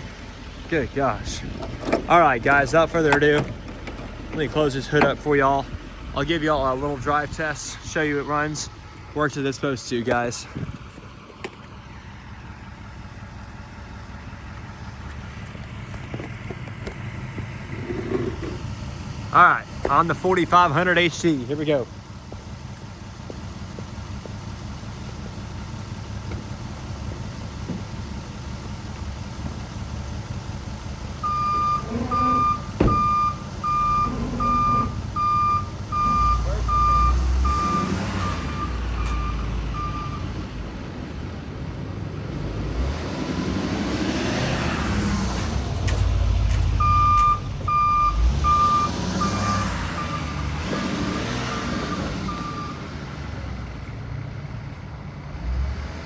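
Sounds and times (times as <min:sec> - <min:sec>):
diesel engine running: 0:00.0 - 0:56.0
truck backup alarm beeping: 0:19.6 - 0:40.6, 0:46.0 - 0:53.3.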